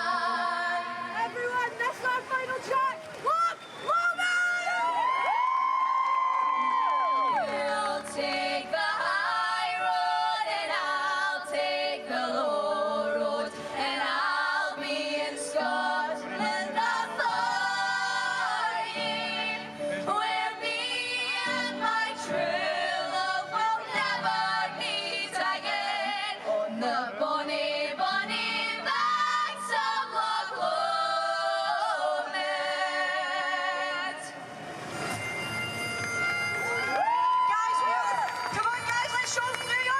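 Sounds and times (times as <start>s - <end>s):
voices singing in harmony: 0.0s - 1.2s, 7.3s - 34.4s.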